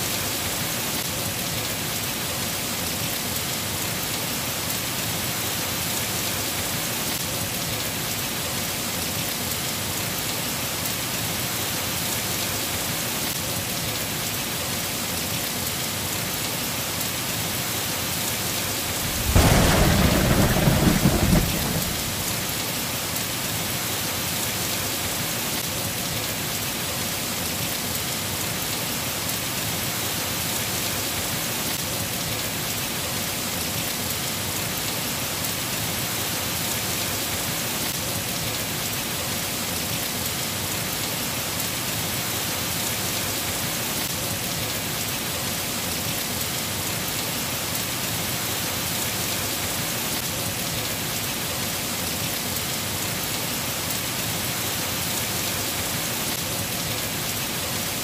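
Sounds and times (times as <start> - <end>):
rain falling on foliage: 0.0 - 58.0
thunder rolling: 18.8 - 22.6.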